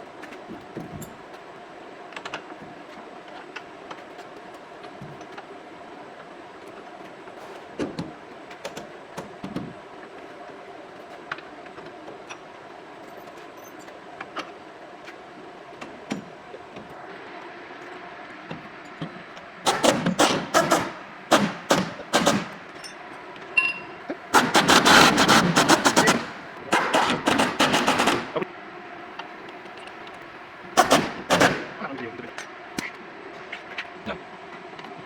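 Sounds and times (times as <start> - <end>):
steady background hum: 0.0 - 35.0
light metallic clinks and knocks: 22.7 - 24.0.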